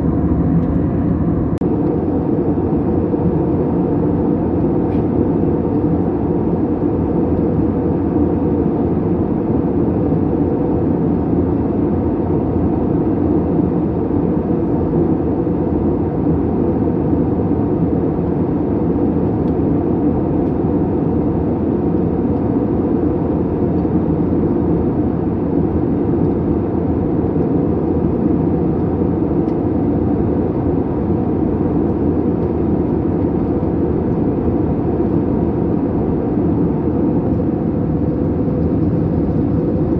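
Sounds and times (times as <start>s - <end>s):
airflow noise: 0.0s - 2.2s
airliner engine noise: 0.0s - 39.9s.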